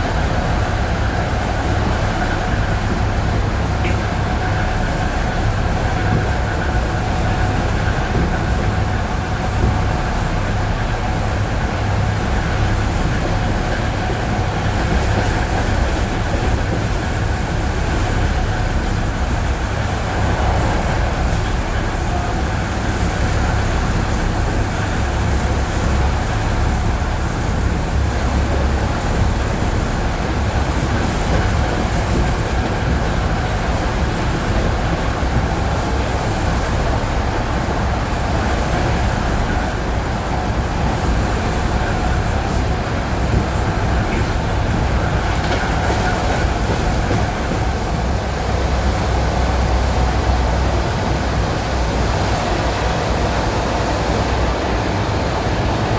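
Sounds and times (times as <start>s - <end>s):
train rumbling: 0.0s - 55.9s
wheels clacking over rail joints: 0.0s - 55.9s.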